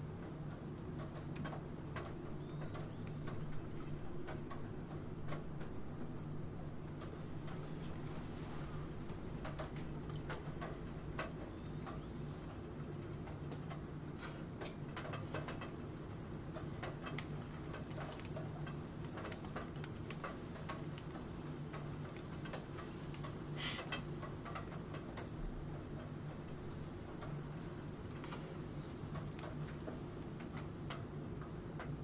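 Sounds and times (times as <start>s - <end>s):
rain: 0.0s - 32.0s.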